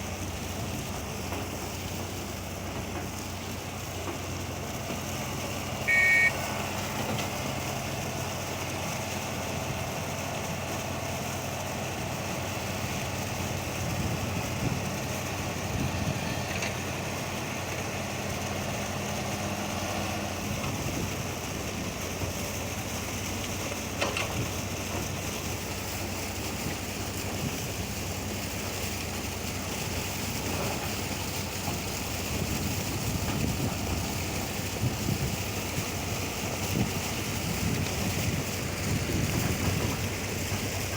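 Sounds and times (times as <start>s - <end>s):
truck engine running: 0.0s - 40.9s
short high beep: 5.8s - 6.5s
wind buffeting microphone: 32.3s - 40.9s.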